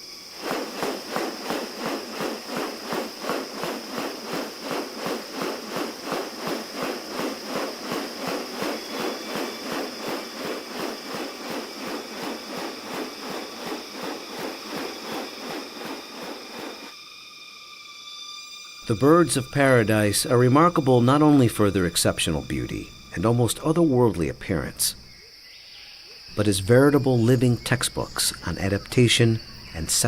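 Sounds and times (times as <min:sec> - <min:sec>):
fast regular rustling: 0:00.0 - 0:16.9
insects droning: 0:00.0 - 0:30.0.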